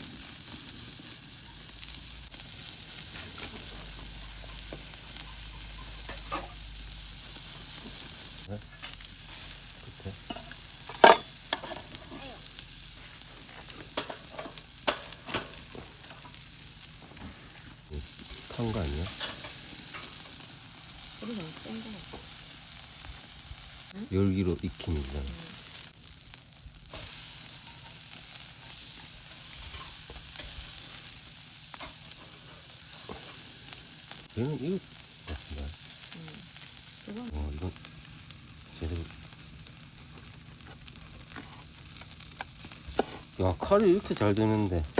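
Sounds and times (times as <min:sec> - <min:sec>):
beef sizzling on a grill: 0:00.0 - 0:44.9
pops and crackles: 0:40.1 - 0:43.3.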